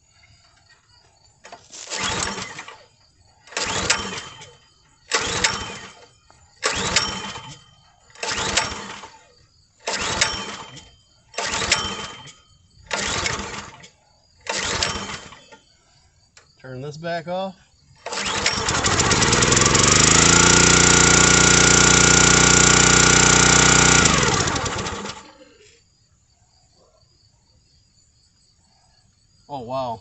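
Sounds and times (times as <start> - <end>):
engine pull-start cranking: 0.5 - 15.7, 18.0 - 25.3.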